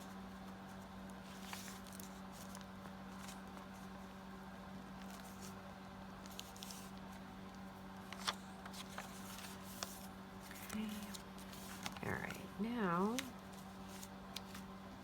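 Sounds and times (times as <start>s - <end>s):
steady low hum: 0.0s - 15.0s
paper rustling: 0.4s - 4.2s, 4.9s - 5.6s, 6.2s - 14.7s
light clicks of paper pieces: 6.2s - 12.4s.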